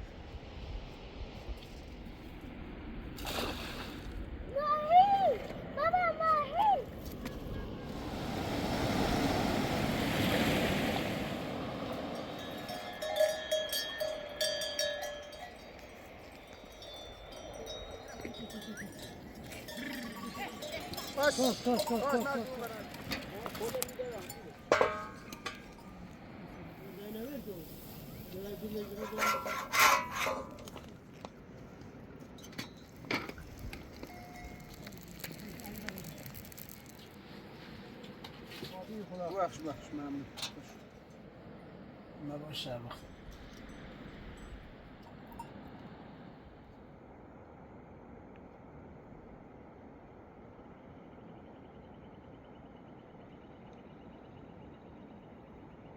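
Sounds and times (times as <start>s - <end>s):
sheep bells clanking: 12.0s - 26.2s, 33.9s - 35.4s
rough scraping: 28.1s - 30.9s.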